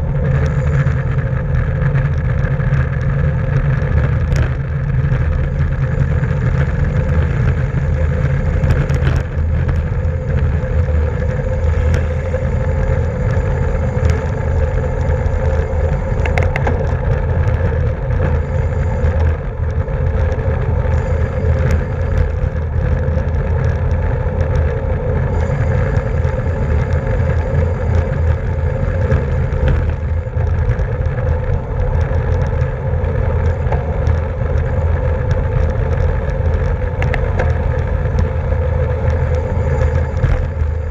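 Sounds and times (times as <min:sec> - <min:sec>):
bicycle tyres and drivetrain whir: 0:00.0 - 0:40.9
wind rush and road rumble: 0:00.0 - 0:40.9.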